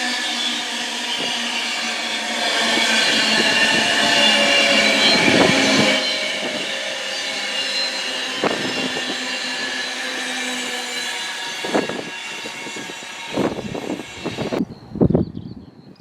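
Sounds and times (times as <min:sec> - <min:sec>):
train passing: 0:00.0 - 0:15.1
train whine: 0:00.0 - 0:15.2.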